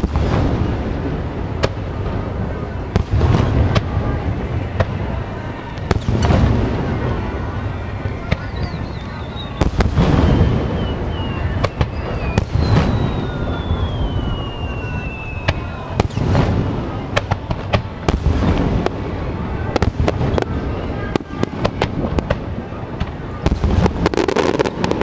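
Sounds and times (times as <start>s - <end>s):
fireworks shells booming: 0.0s - 25.0s
descending firework whistle: 2.1s - 25.0s.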